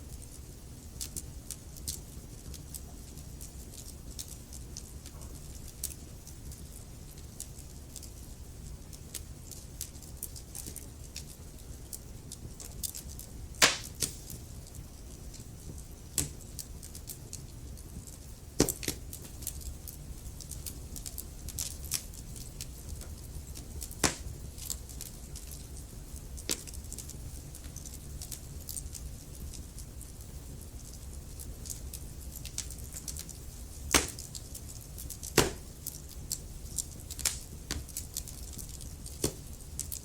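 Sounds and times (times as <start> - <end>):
fire crackling: 0.0 - 40.0
low rumble of flames: 0.0 - 40.0
sharp pops from burning wood: 12.6 - 14.4, 16.1 - 16.5, 18.6 - 19.4, 20.4 - 25.6, 26.4 - 27.2, 32.4 - 40.0.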